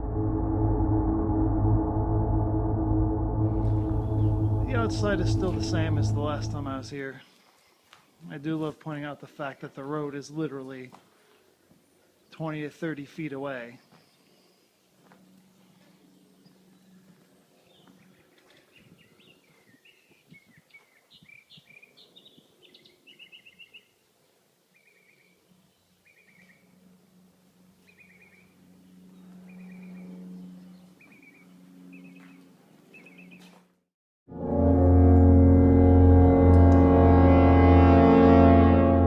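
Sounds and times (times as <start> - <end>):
low steady hum: 0.0 - 7.1, 34.4 - 39.0
faint birdsong chirps: 13.7 - 26.8, 27.8 - 33.6.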